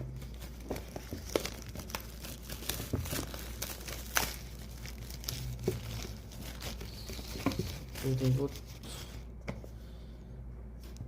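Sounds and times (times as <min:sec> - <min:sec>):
packaging crinkling and tearing: 0:00.0 - 0:08.8.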